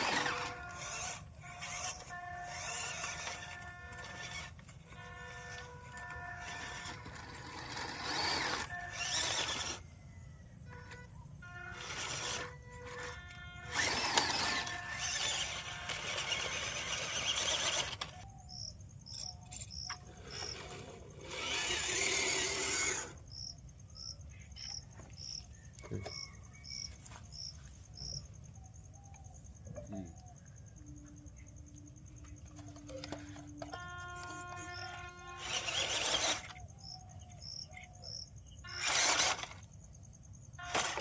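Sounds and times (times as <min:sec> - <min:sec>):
toy car motor whirring: 0:00.0 - 0:28.2, 0:32.2 - 0:40.0, 0:40.6 - 0:41.0
faint high chirping: 0:21.3 - 0:39.6.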